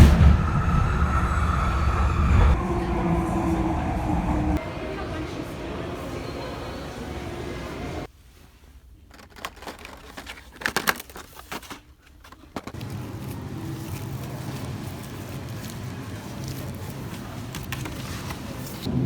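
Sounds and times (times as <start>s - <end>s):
vehicle engine rumbling: 0.0s - 8.1s.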